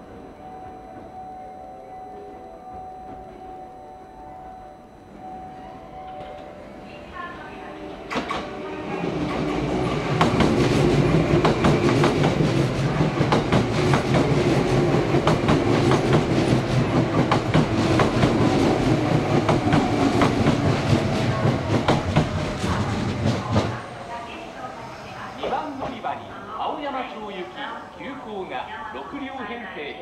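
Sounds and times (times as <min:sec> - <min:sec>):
train rumble: 0:00.0 - 0:30.0
train wheels clacking: 0:08.1 - 0:24.4.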